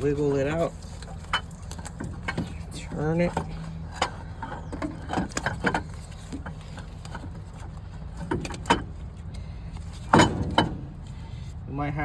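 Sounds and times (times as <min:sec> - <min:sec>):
steady low hum: 0:00.0 - 0:12.0
metal knocks and clicks: 0:10.1 - 0:11.0.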